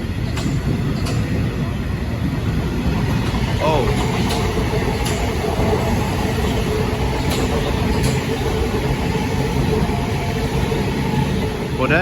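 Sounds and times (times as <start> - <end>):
wheels clicking over rail joints: 0.0 - 1.6, 2.5 - 11.2
electric train rolling past: 0.0 - 12.0.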